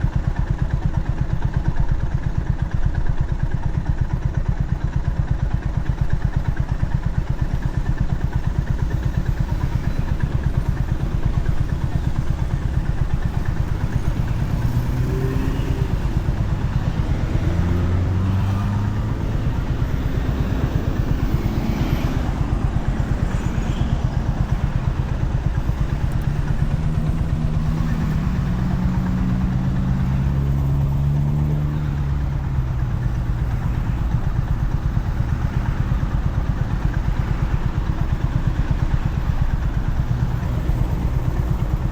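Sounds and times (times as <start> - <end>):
motorcycle engine thrumming: 0.1 - 31.4.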